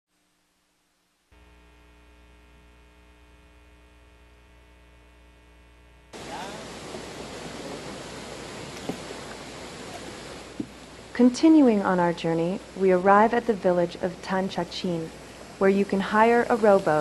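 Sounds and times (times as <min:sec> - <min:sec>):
electronic hum: 0:01.1 - 0:17.0
rushing noise: 0:06.2 - 0:12.1.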